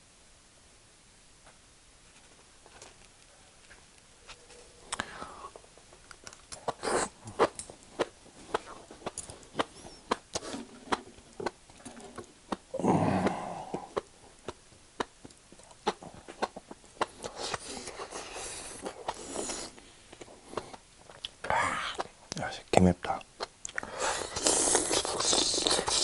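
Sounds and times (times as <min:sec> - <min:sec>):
wet chewing: 0:06.1 - 0:21.4, 0:23.4 - 0:26.0
breathy bursts: 0:12.7 - 0:14.0.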